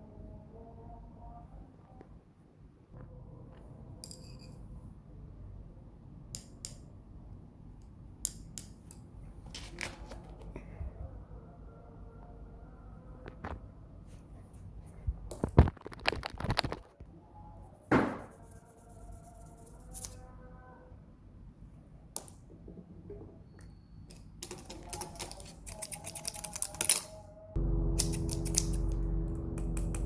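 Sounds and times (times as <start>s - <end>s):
faint music: 0.0s - 5.8s, 9.3s - 15.4s, 16.4s - 21.5s, 22.7s - 30.0s
objects being handled clicking: 24.1s - 27.2s.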